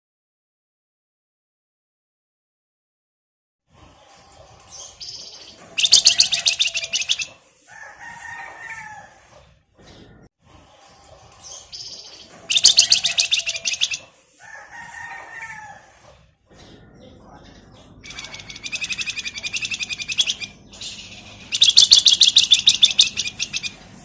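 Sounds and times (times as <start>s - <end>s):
bird song with buzzing trill: 4.8s - 7.3s, 11.5s - 14.0s, 18.0s - 24.0s.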